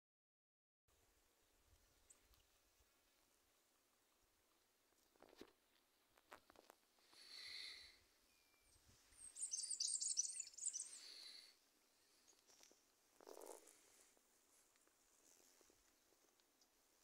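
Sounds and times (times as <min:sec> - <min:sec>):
wild birds calling: 0:08.5 - 0:12.6.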